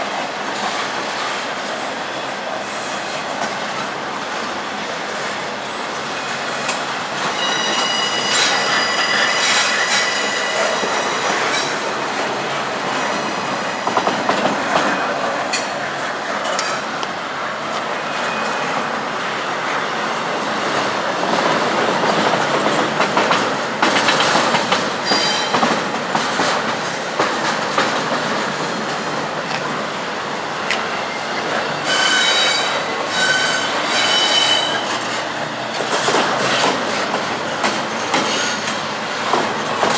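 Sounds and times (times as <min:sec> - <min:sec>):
freight cars rumbling on rails: 0:00.0 - 0:39.9
high-pitched wheel squeal: 0:07.3 - 0:11.8, 0:31.8 - 0:35.2.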